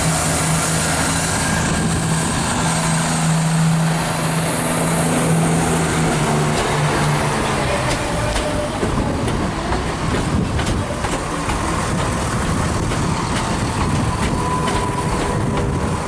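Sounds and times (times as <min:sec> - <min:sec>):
train rumbling: 0:00.0 - 0:16.0
wheels clicking over rail joints: 0:05.9 - 0:16.0.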